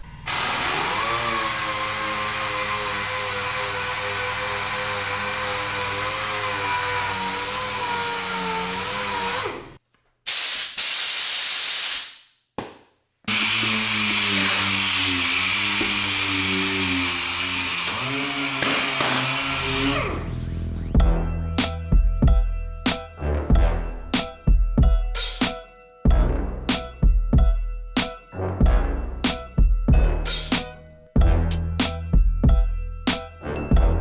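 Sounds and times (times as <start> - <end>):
orbital sander whining: 0.3 - 9.8, 13.3 - 20.8.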